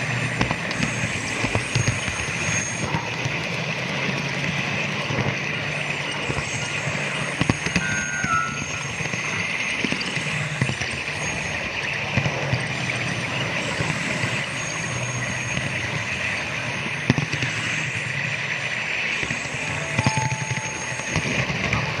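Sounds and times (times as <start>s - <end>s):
wheels clicking over rail joints: 0.4s - 7.8s
low hum: 0.6s - 9.8s, 15.5s - 22.0s
model train rolling hiss: 0.7s - 7.6s.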